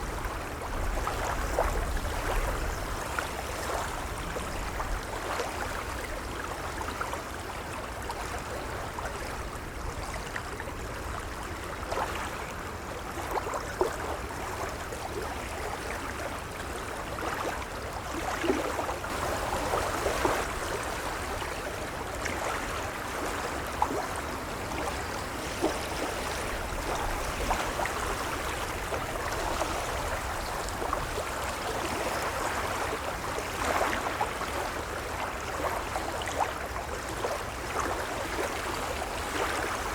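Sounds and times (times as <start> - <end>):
small water splashes: 0.0 - 39.9
waves lapping: 15.8 - 39.9.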